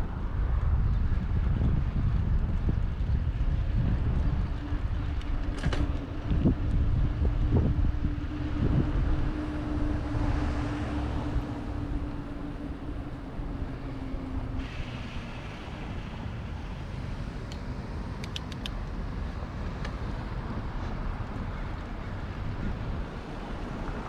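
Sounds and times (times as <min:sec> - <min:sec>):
wind buffeting microphone: 0:00.0 - 0:24.0
sharp clicks: 0:17.4 - 0:18.9.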